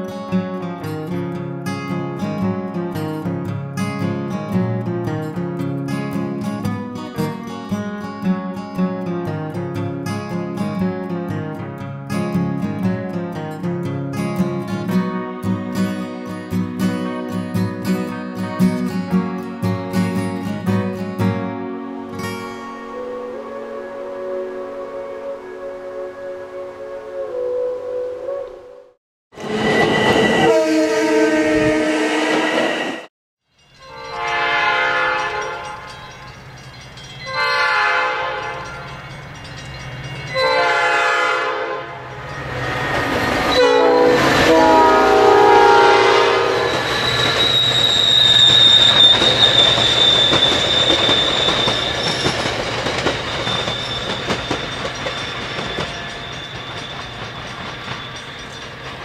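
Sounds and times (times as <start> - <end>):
steady high tone: 22.2 - 28.7
train horn blasts: 22.6 - 28.8, 29.4 - 33.0, 33.9 - 36.0, 37.3 - 38.8, 40.3 - 47.1.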